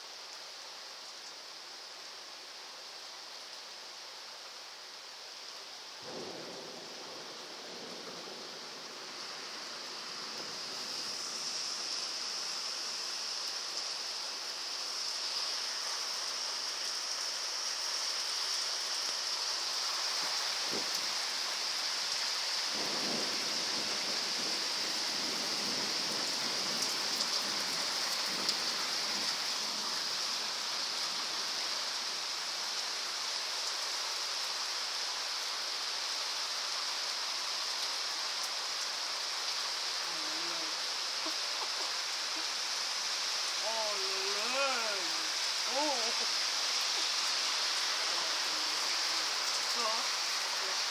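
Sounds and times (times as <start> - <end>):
heavy rain pouring: 0.0 - 50.9
thunder rumbling: 6.0 - 11.3, 22.7 - 28.5.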